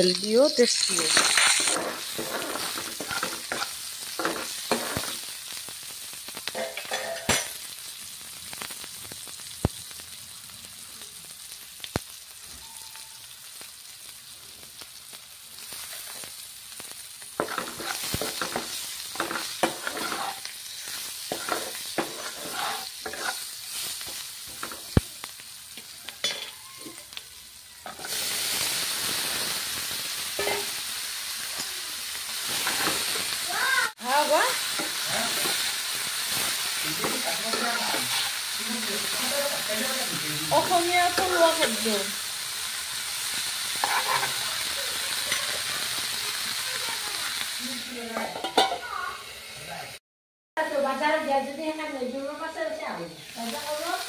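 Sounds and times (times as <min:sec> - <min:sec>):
onions sizzling in oil: 0:00.0 - 0:50.0, 0:50.6 - 0:54.0
metal ladle scraping a wok: 0:00.5 - 0:05.1, 0:17.4 - 0:23.9, 0:30.4 - 0:30.7, 0:43.8 - 0:44.4, 0:48.2 - 0:48.8.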